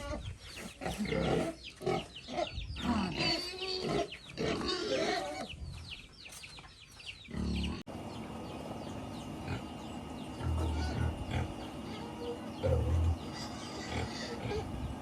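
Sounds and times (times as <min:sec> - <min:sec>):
pigs grunting: 0:00.0 - 0:05.5, 0:07.3 - 0:07.8, 0:09.4 - 0:15.0
pigs squeaking: 0:00.0 - 0:05.6, 0:09.4 - 0:15.0.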